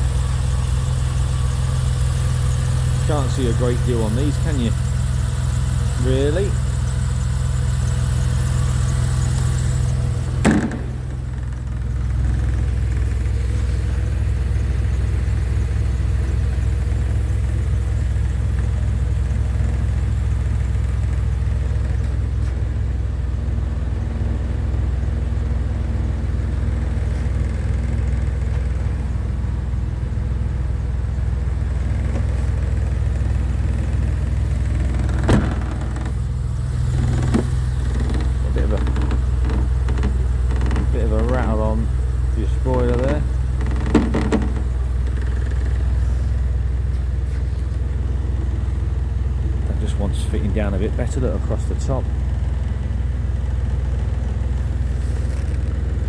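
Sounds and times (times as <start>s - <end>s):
car engine idling: 0.0s - 56.0s
sharp knocks: 10.4s - 11.8s, 34.8s - 36.2s, 43.6s - 45.6s.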